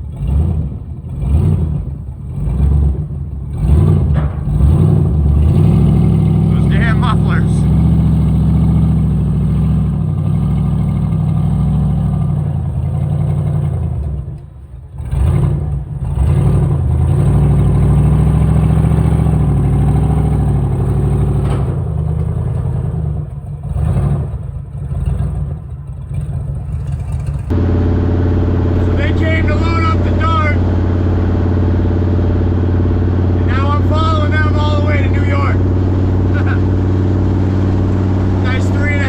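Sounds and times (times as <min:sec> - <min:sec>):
truck engine running: 0:00.0 - 0:39.0.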